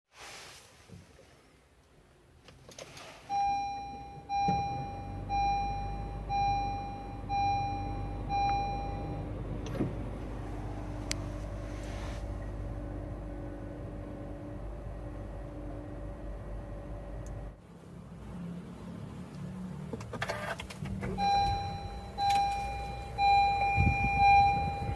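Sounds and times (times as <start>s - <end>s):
low steady car hum: 0.7s - 24.9s
dashboard chime beeping: 3.3s - 9.3s, 21.2s - 24.9s.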